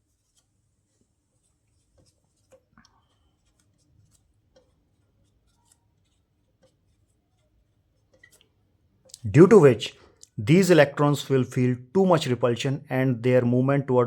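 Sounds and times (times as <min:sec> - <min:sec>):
pen tapping and scratching: 0:00.1 - 0:09.1.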